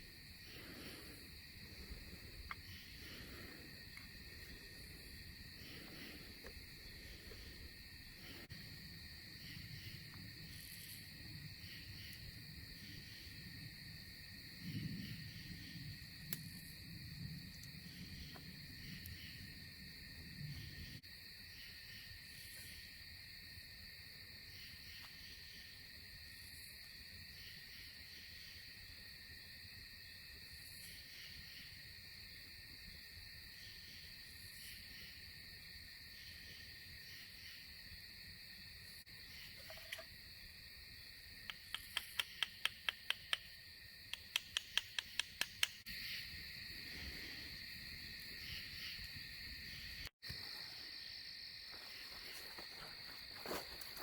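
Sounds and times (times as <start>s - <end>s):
crickets trilling: 0.0s - 54.0s
sharp clicks: 41.4s - 43.5s, 44.1s - 45.8s.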